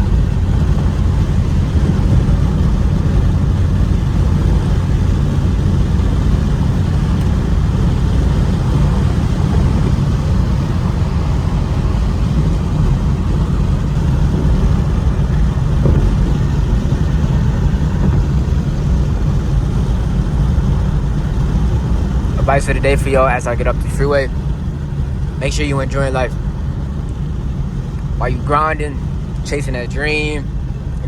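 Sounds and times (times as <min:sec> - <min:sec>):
car engine and tyre rumble: 0:00.0 - 0:31.0.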